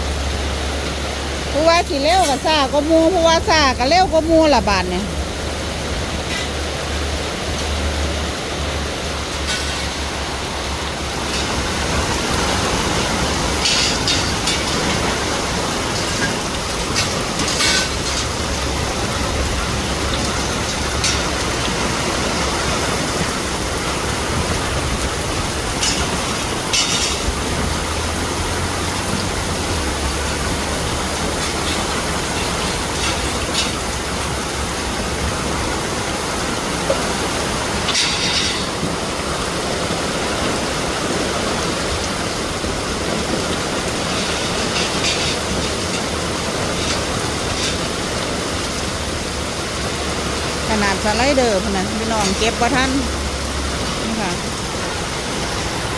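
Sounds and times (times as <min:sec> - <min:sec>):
heavy rain pouring: 0:00.0 - 0:55.9
wind buffeting microphone: 0:01.3 - 0:37.9.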